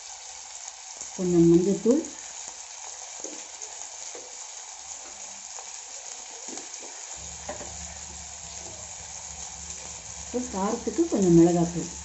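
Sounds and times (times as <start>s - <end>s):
vegetables sizzling in oil: 0.0s - 12.0s
low hum: 7.2s - 12.0s.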